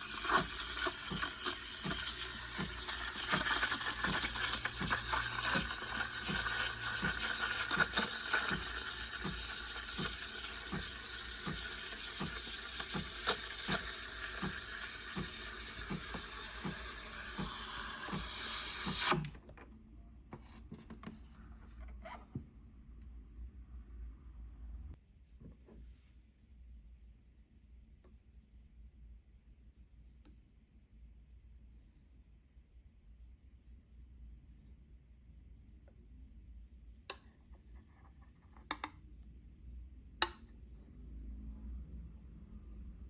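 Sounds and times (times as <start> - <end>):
steam wand hissing: 0.0 - 19.2.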